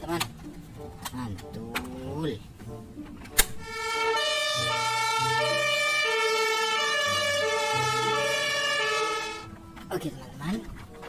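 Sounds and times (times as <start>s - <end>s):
toy electronic siren: 3.7s - 9.5s.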